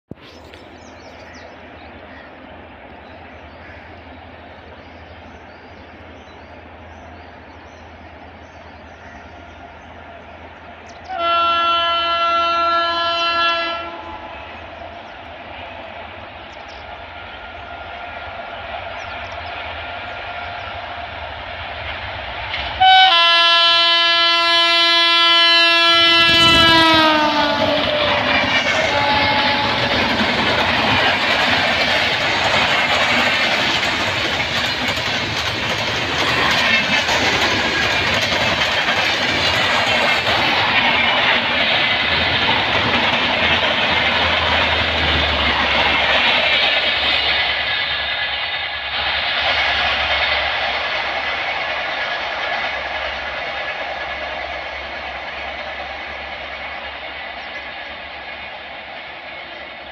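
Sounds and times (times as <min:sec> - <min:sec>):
locomotive horn: 0:11.1 - 0:14.3, 0:22.8 - 0:30.1.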